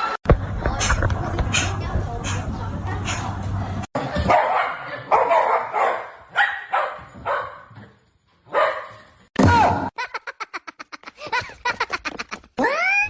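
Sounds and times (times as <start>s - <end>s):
dog barking: 4.2s - 7.8s, 8.5s - 9.1s.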